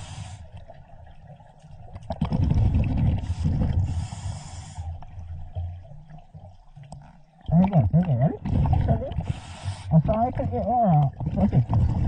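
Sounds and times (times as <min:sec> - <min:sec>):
diver breathing through regulator: 0:00.0 - 0:00.5, 0:03.1 - 0:05.0, 0:09.2 - 0:09.9
exhaled bubbles hissing: 0:00.0 - 0:00.9, 0:02.1 - 0:05.5, 0:07.7 - 0:10.2.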